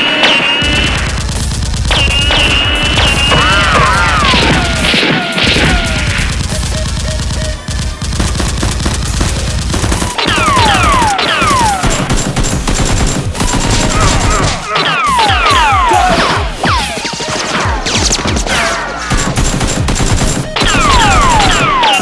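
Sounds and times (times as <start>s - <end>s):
music: 0.0s - 22.0s
rapid gunfire: 0.0s - 22.0s
falling whistle-like tones: 2.0s - 4.9s.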